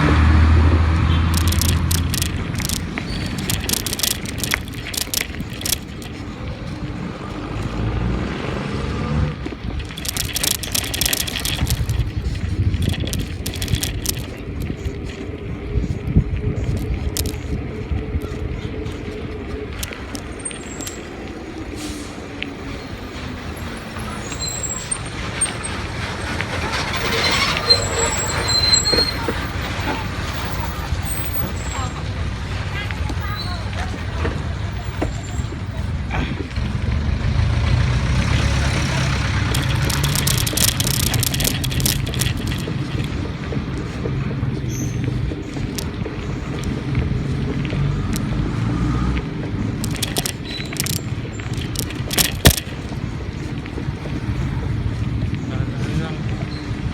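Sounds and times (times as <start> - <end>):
brakes squealing: 0.0 - 56.9
vehicle engine rumbling: 0.0 - 56.9
sharp rattling clicks: 1.0 - 6.2, 9.4 - 15.2, 16.6 - 17.6, 38.1 - 43.2, 49.7 - 53.0.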